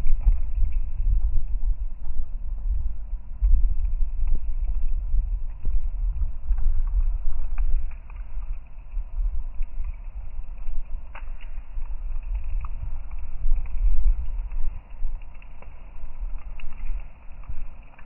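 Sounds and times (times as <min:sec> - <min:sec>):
low rumble buffeting microphone: 0:00.0 - 0:18.0
faint ticks: 0:10.8 - 0:18.0.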